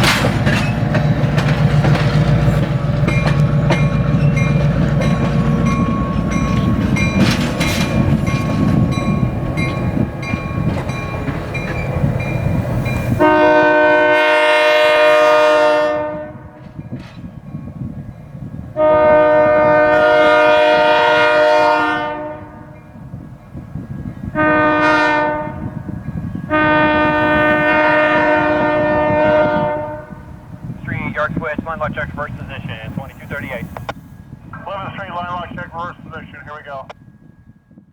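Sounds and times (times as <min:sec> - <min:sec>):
diesel locomotive running: 0:00.0 - 0:37.5
locomotive air horn blasts: 0:13.1 - 0:16.6, 0:18.8 - 0:22.9, 0:24.3 - 0:25.8, 0:26.5 - 0:30.6.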